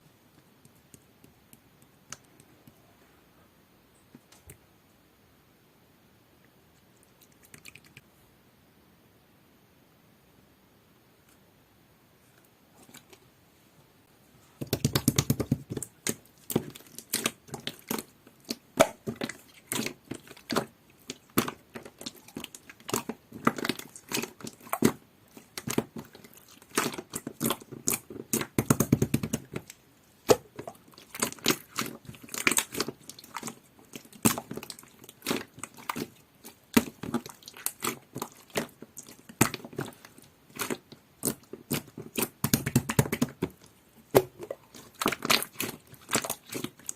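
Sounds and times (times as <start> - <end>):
slime squishing: 14.6 - 46.9.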